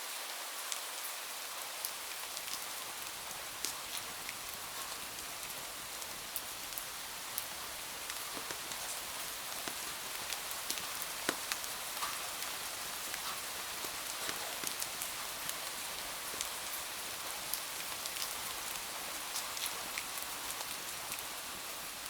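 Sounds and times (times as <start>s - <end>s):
steady rain: 0.0s - 22.0s
raindrop ticks: 6.7s - 16.8s.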